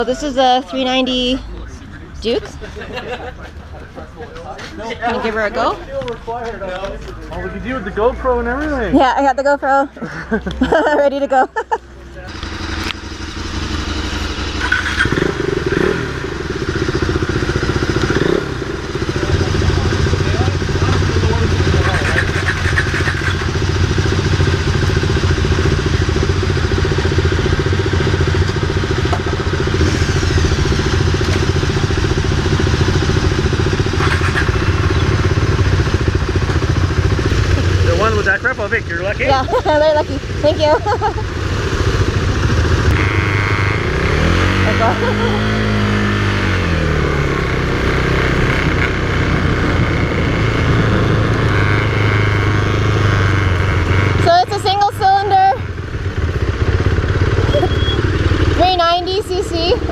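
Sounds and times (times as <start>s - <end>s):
motorcycle engine idling: 5.0s - 59.9s
engine clatters: 10.2s - 59.9s.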